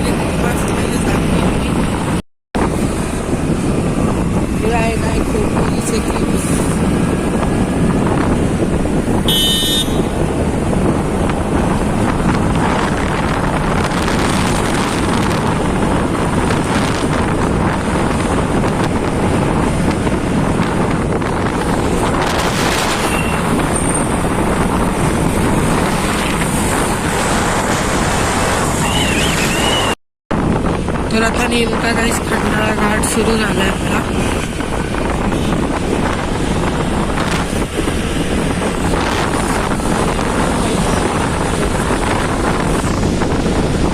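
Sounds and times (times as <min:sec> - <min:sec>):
motorcycle wind and road noise: 0:00.0 - 0:43.9
vehicle horn toot: 0:09.2 - 0:10.2.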